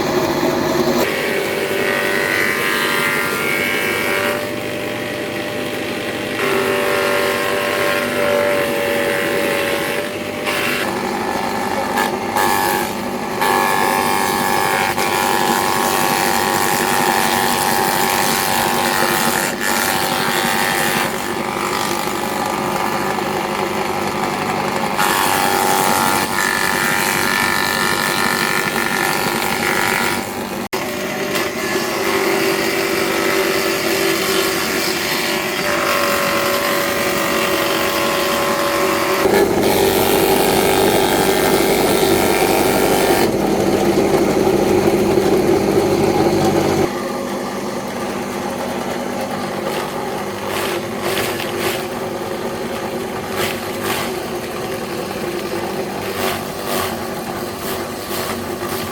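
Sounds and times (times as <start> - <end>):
machine motor humming: 17.6 - 58.8.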